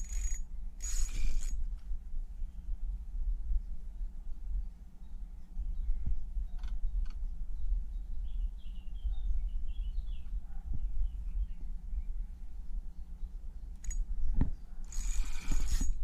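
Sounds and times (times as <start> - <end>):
low microphone rumble: 0.0 - 16.0
small birds chirping: 3.9 - 15.3.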